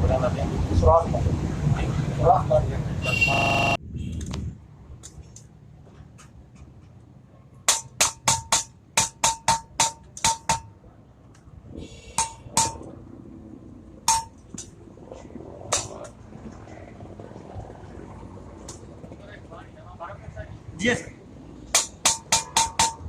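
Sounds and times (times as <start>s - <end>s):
hammer striking metal: 7.7s - 10.7s, 12.2s - 12.9s, 14.1s - 14.4s, 21.7s - 23.0s.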